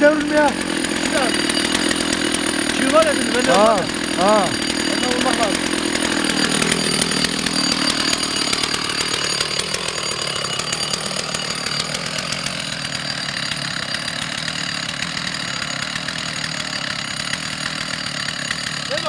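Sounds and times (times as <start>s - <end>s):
chainsaw cutting tree trunk: 0.0s - 19.0s.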